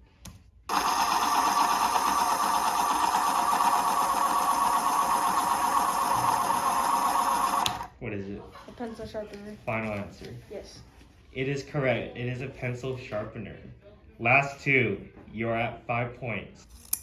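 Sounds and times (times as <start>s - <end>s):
electric pencil sharpener whirring: 0.7s - 7.9s.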